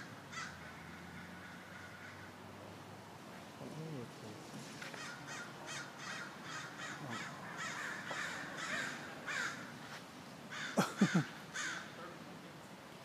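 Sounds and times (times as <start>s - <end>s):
crows cawing: 0.0s - 2.4s, 4.9s - 12.0s.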